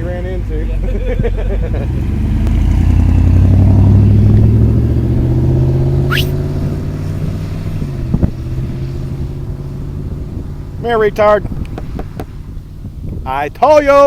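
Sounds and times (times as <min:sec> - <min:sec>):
vehicle engine running: 0:00.0 - 0:13.2
rising squeak: 0:05.8 - 0:06.5.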